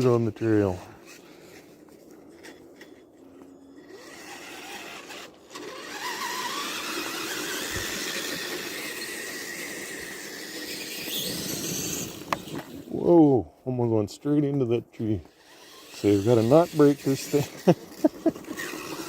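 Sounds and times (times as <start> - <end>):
toy truck electric motor whining: 2.4 - 12.9, 15.3 - 19.0.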